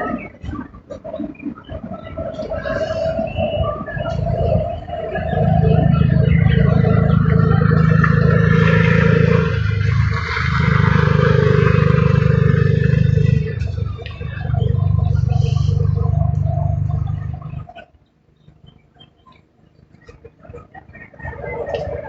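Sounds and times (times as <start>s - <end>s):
goods train rumbling: 1.8s - 17.8s.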